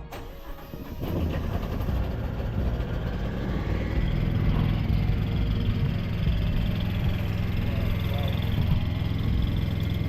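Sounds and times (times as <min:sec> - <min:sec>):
diesel truck engine idling: 0:00.0 - 0:10.0.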